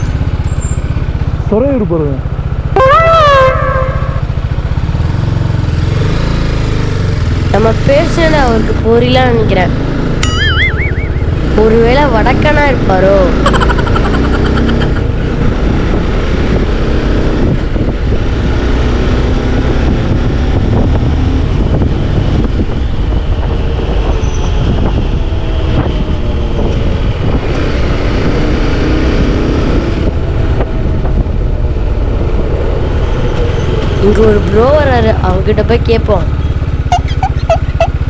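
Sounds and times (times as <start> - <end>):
motorcycle engine running: 0.0 - 38.0
wind noise on microphone: 7.6 - 37.9.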